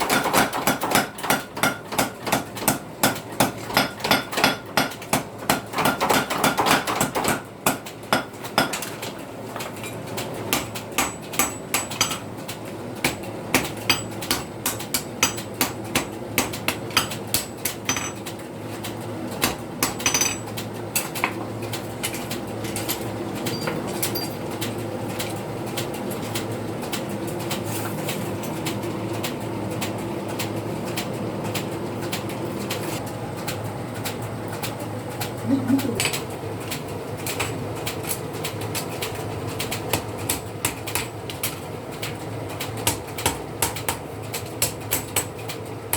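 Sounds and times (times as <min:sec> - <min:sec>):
hammer striking steel on anvil: 0:10.5 - 0:12.2, 0:13.0 - 0:18.2.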